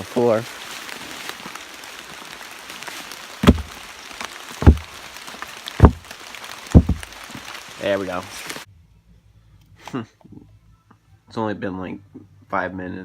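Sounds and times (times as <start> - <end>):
dull heavy knocks: 3.4 - 3.8, 4.6 - 5.0, 5.8 - 6.1, 6.7 - 7.2.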